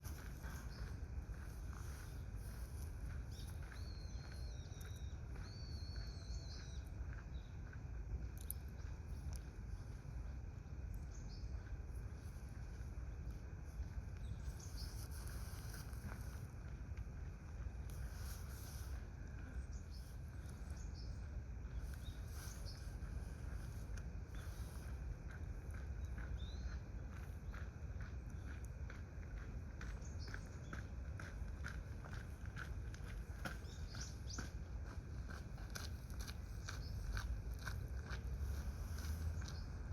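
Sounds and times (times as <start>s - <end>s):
steady low rumble: 0.0s - 39.9s
faint high bird chirps: 3.1s - 7.8s.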